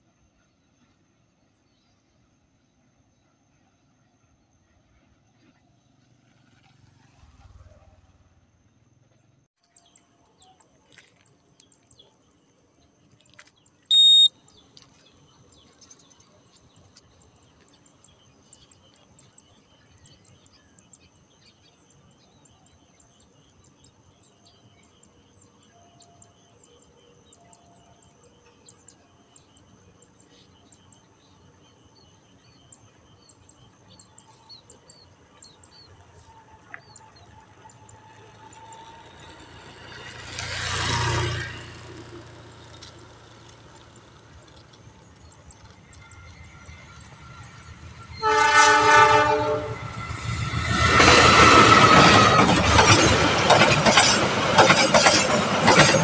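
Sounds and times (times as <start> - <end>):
short loud high beep: 13.9 - 14.3.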